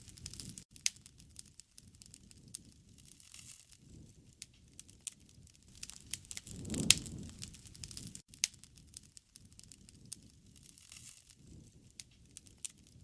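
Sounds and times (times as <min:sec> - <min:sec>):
low rush of burning: 0:00.0 - 0:13.0
wood fire crackling: 0:00.0 - 0:13.0.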